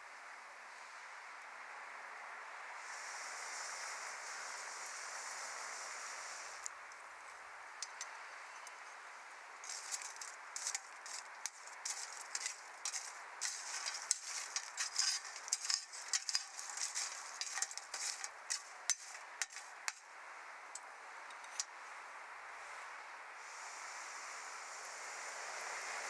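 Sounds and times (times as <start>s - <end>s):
steady hiss of fire: 0.0s - 26.0s
wood fire crackling and snapping: 9.6s - 20.1s.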